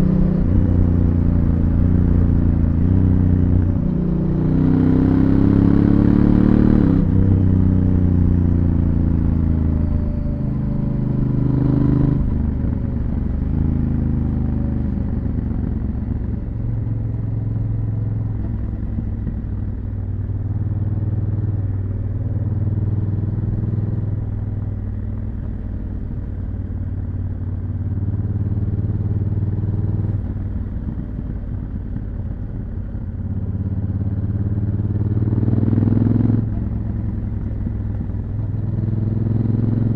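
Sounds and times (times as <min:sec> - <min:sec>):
motorcycle engine revving: 0:00.0 - 0:25.3, 0:33.3 - 0:39.9.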